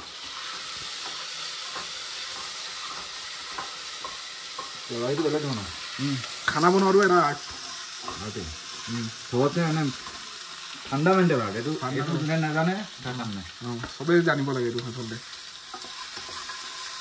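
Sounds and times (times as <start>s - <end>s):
vegetables sizzling in oil: 0.0s - 17.0s
person speaking: 10.9s - 15.2s.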